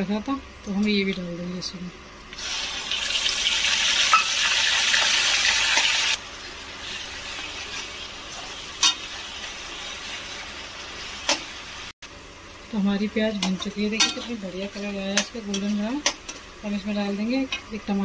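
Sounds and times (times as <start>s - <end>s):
paste sizzling in hot oil: 2.4s - 11.9s.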